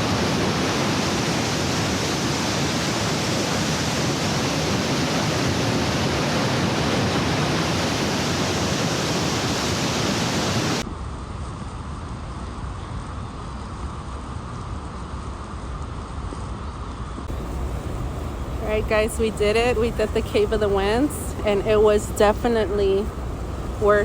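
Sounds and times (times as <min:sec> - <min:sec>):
waterfall rushing: 0:00.0 - 0:10.8, 0:17.3 - 0:24.0
dull rumble: 0:17.3 - 0:24.0.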